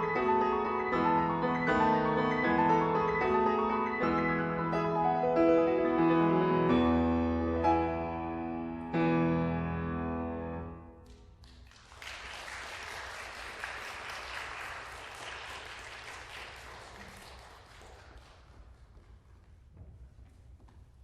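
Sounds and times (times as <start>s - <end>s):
audience applause: 11.4s - 18.8s.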